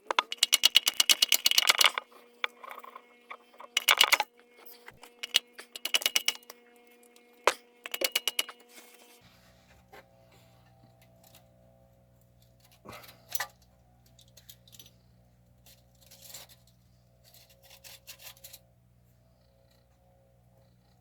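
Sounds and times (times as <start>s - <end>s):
steady low hum: 0.0s - 21.0s
metallic clinks: 12.4s - 15.0s.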